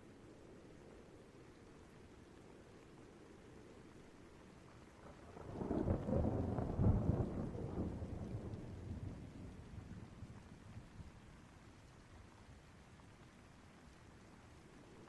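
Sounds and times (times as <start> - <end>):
faint rain hiss: 0.0 - 15.0
thunder rumbling: 5.0 - 11.4.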